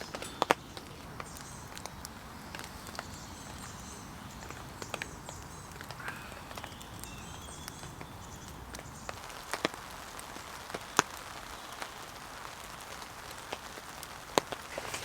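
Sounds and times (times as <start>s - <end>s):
rain on a tent: 0.0s - 15.0s.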